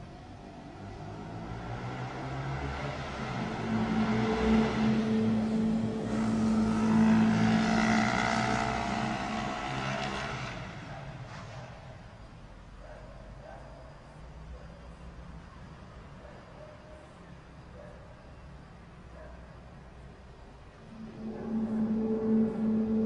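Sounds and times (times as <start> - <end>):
higher tone sliding downward: 2.8 - 9.5, 20.8 - 23.0
loud low droning hum: 2.8 - 10.0, 20.8 - 23.0.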